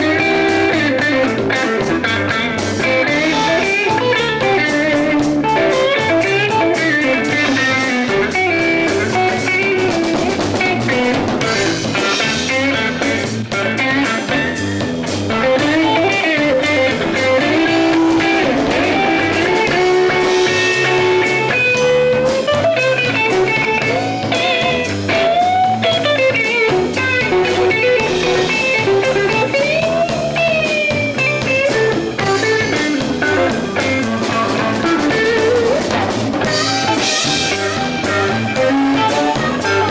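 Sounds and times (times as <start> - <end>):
live blues band: 0.0 - 39.9
lead melody bending in pitch: 36.4 - 39.9.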